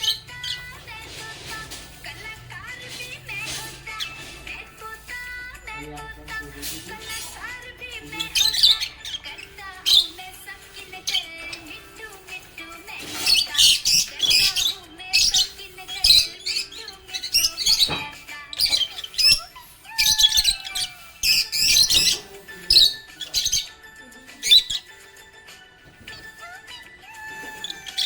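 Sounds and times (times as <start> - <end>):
budgerigar chirping: 0.0 - 0.8, 6.9 - 11.9, 13.0 - 25.0, 27.2 - 28.0
background music with held tones: 0.0 - 28.0.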